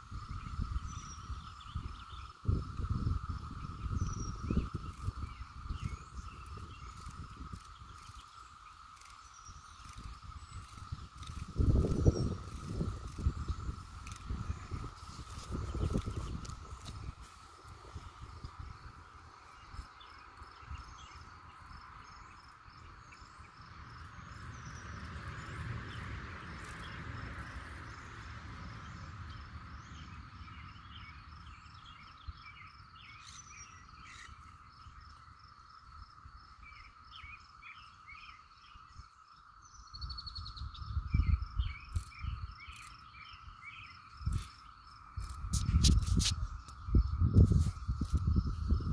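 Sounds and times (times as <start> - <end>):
insects and frogs calling: 0.0 - 48.9
high ticks: 6.4 - 17.8, 45.2 - 46.8.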